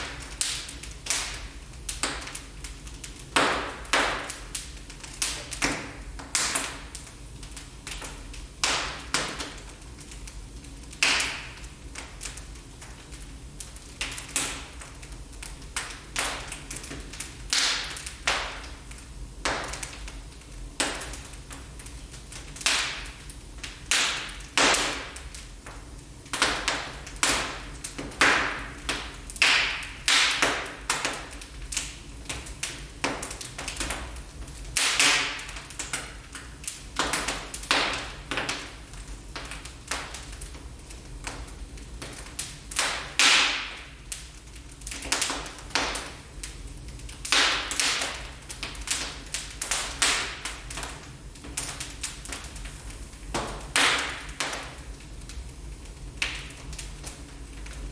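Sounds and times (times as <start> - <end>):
wood fire crackling and popping: 0.0 - 57.9.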